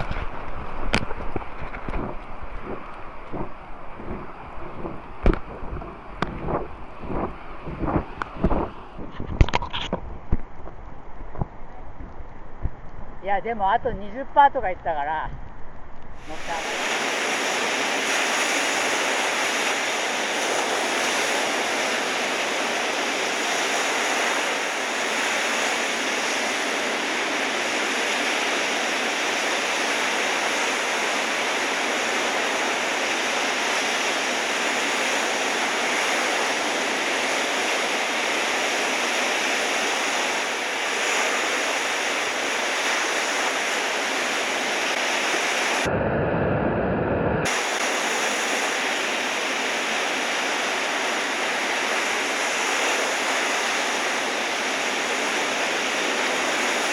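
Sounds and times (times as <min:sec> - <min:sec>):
surf rushing: 0:00.0 - 0:10.4, 0:16.1 - 0:56.9.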